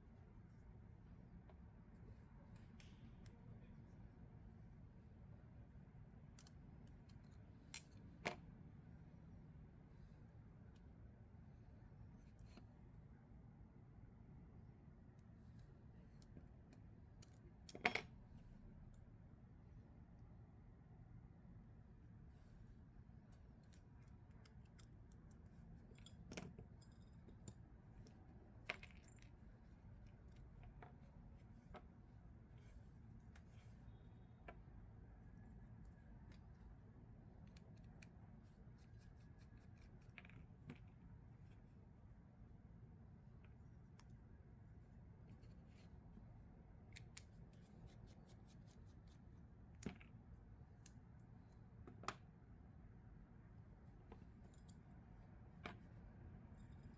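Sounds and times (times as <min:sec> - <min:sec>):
low steady hum: 0:00.0 - 0:56.9
small metallic clicks and clinks: 0:23.6 - 0:27.6.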